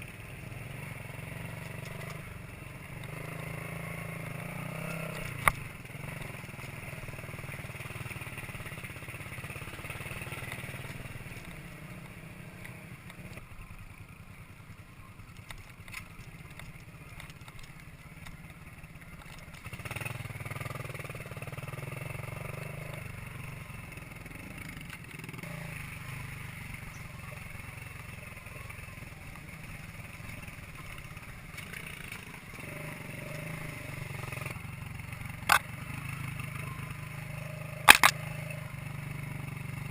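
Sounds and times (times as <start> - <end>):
motorcycle engine running: 0.0 - 39.9
sharp click: 37.9 - 38.2.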